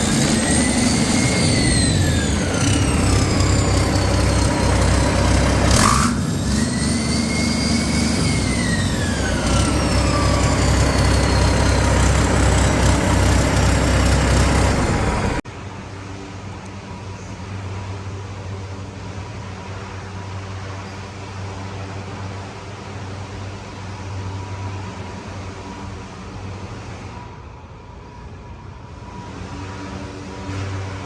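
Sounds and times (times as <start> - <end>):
steady hum: 0.0 - 19.3
diesel engine whine: 0.0 - 31.0.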